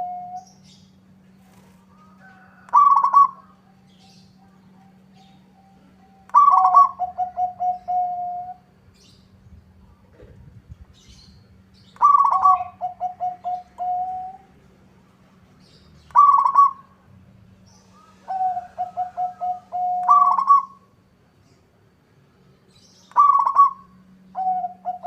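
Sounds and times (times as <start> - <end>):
dove cooing: 0.0 - 0.5, 1.5 - 8.7, 11.9 - 14.6, 16.0 - 17.0, 17.8 - 20.9, 23.1 - 25.0
faint low hum: 0.0 - 25.0.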